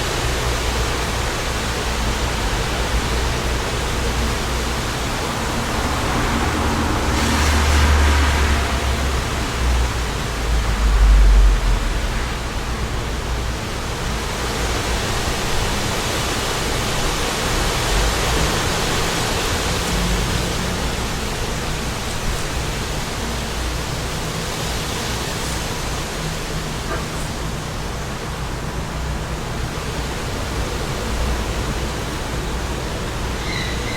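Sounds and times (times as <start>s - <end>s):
wind rumbling on microphone: 0.0s - 26.8s
wind blowing: 1.6s - 14.2s.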